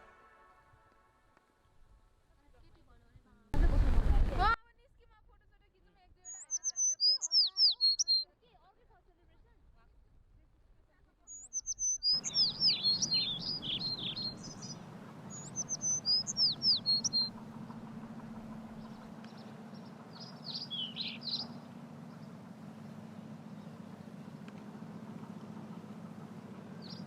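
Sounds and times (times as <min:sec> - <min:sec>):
small bird singing chirps and whistles: 0:06.3 - 0:08.2, 0:11.3 - 0:17.3, 0:20.2 - 0:21.6
steady low hum: 0:12.2 - 0:27.0.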